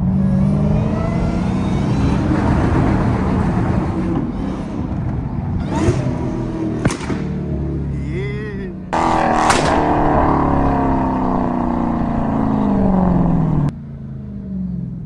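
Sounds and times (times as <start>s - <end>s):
car engine at full throttle: 0.0s - 15.0s
sharp exhaust crack: 3.6s - 13.7s.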